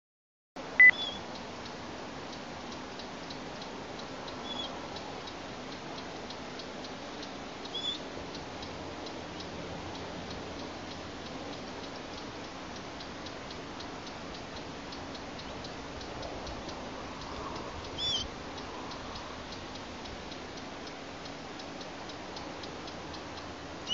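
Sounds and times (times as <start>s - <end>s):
faint even ticking: 0.6s - 23.9s
steady hiss: 0.6s - 23.9s
loud high beep: 0.8s - 1.0s
high bird chirps: 0.8s - 1.2s, 4.4s - 4.8s, 7.7s - 8.0s, 17.9s - 18.3s.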